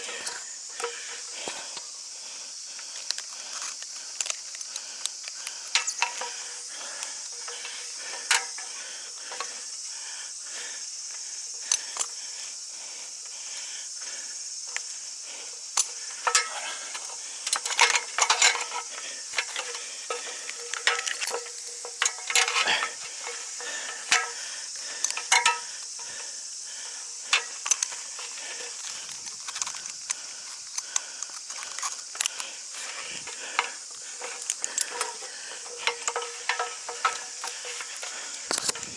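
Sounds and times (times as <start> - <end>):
steady high hiss: 0.0 - 38.9
metallic gear clinking and rattling: 33.1 - 38.9.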